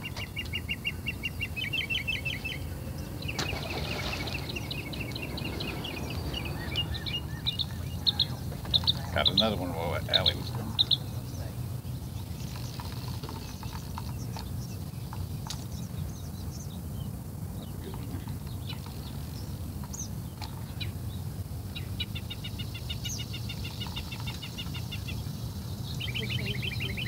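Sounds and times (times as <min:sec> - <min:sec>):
bird trilling: 0:00.0 - 0:11.5.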